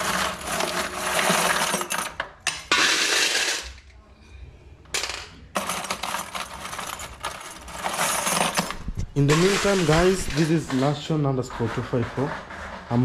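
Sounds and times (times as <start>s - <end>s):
steel nails clinking and rattling: 5.6s - 13.0s.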